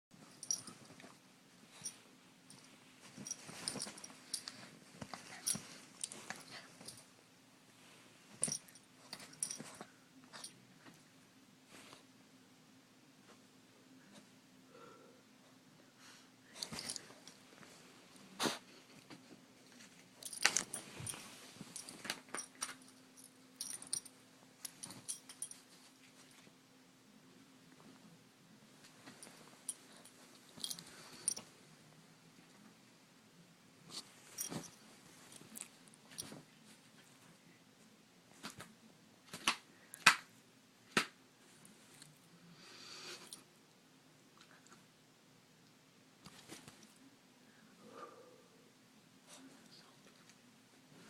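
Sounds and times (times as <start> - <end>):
metallic jingles and clicks: 0.3 - 1.0, 1.7 - 7.0, 20.2 - 25.6, 29.1 - 31.4
dog collar tags jingling: 21.8 - 24.1.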